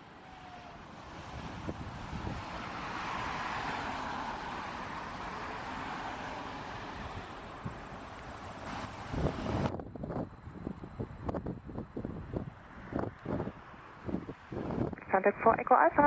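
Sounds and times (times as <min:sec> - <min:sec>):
jet airliner taking off: 0:00.0 - 0:16.0.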